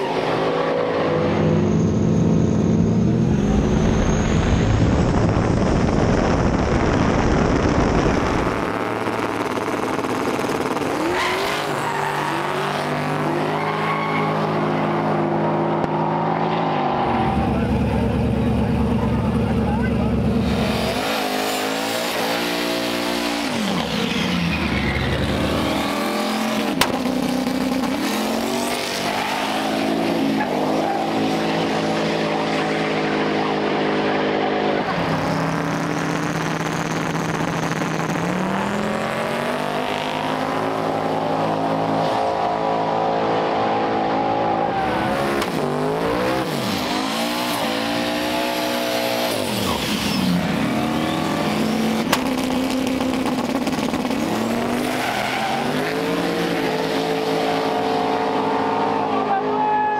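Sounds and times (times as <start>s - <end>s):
racing engines revving: 0.0s - 59.9s.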